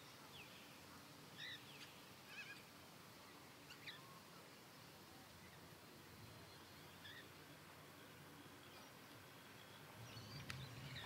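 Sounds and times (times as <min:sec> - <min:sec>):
faint bird chirps: 0:00.0 - 0:02.7, 0:03.3 - 0:04.4, 0:05.3 - 0:07.4
background hiss: 0:00.0 - 0:11.0.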